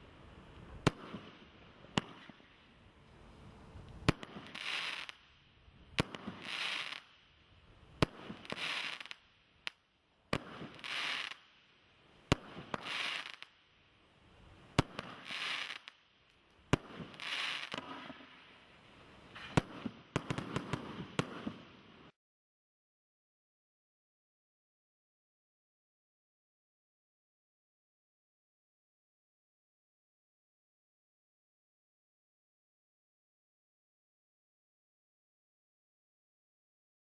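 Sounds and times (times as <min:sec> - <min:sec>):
firework crackle: 0:00.0 - 0:22.2
firework bangs: 0:04.0 - 0:05.2, 0:06.0 - 0:07.1, 0:08.0 - 0:09.2, 0:10.3 - 0:11.4, 0:12.3 - 0:13.5, 0:14.7 - 0:15.9, 0:16.7 - 0:18.4, 0:19.3 - 0:21.8.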